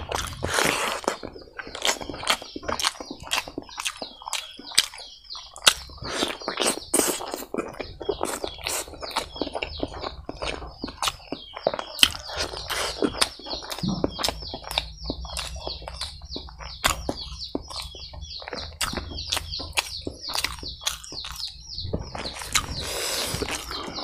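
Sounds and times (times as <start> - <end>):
rapid high chirping: 0.0 - 24.0
wet chewing and lip-smacking: 0.0 - 24.0
moist mouth clicks: 22.2 - 24.0.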